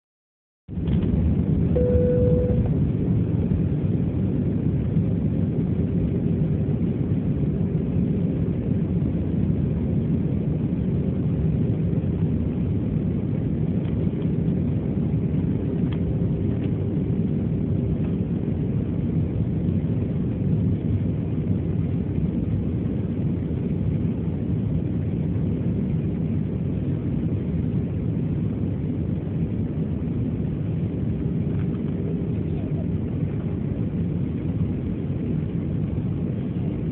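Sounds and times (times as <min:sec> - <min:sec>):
airplane cabin engine rumble: 0:00.7 - 0:36.9
faint steady hum: 0:01.4 - 0:04.0
short tone: 0:01.8 - 0:02.8.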